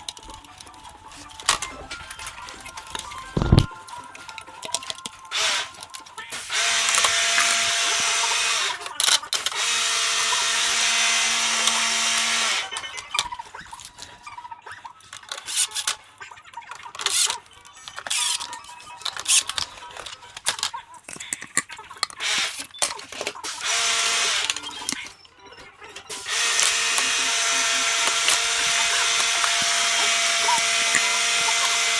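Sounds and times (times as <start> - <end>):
electric screwdriver running: 2.4 - 3.7, 4.7 - 14.1, 18.0 - 19.7, 20.4 - 25.1, 26.2 - 31.9.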